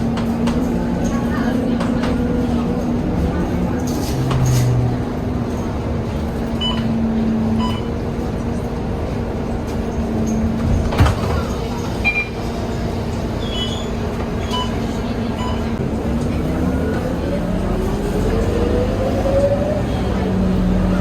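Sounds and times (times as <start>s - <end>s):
bus engine hum: 0.0s - 21.0s
road rumble: 0.0s - 21.0s.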